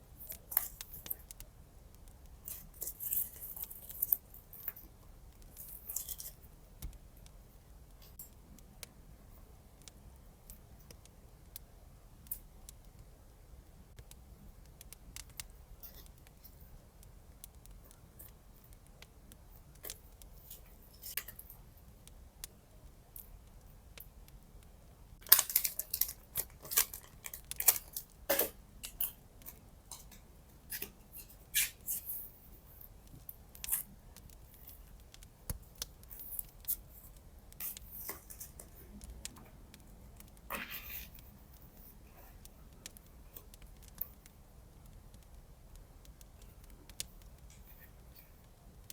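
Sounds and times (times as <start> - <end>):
paper handling sounds: 25.2 - 30.1.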